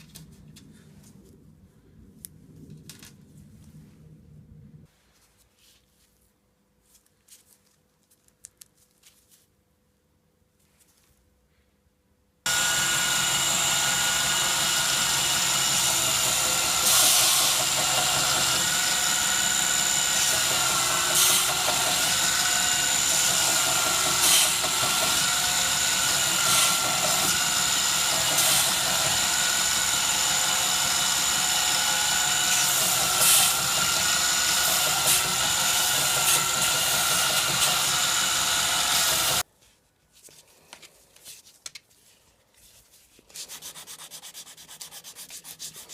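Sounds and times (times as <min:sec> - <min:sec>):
power tool whining: 0:12.5 - 0:39.4.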